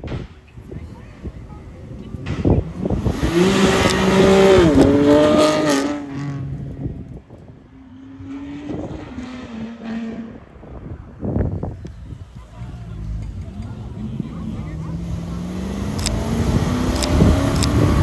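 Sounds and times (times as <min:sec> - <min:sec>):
car engine accelerating hard: 0:02.4 - 0:06.9, 0:12.6 - 0:18.0.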